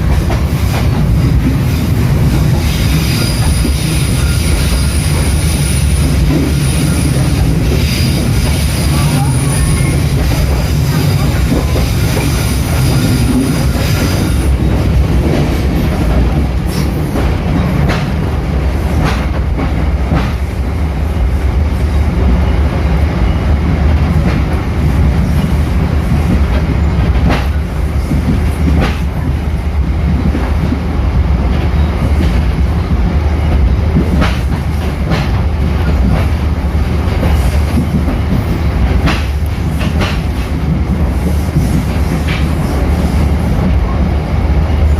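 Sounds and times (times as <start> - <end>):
train rumbling on rails: 0.0 - 44.9
high wheel squeal: 2.6 - 10.2.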